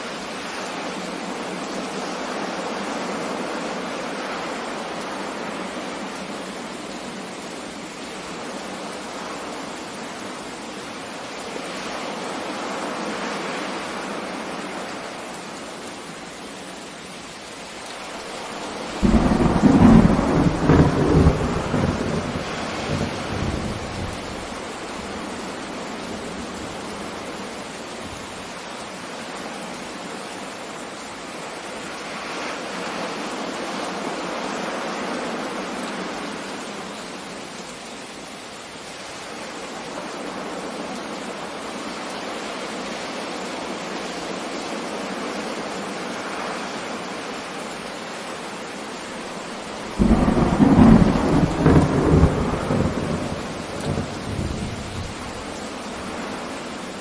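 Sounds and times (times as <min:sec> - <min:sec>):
steady rain falling: 0:00.0 - 0:57.0
thunder crack and rumble: 0:19.0 - 0:24.6, 0:49.9 - 0:55.4.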